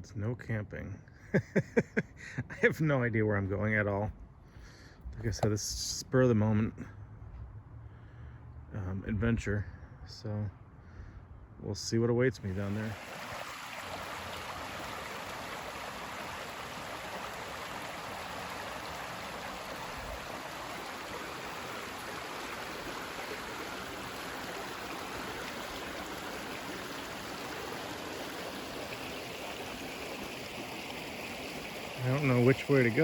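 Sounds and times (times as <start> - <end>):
river water rushing: 12.6 - 33.0.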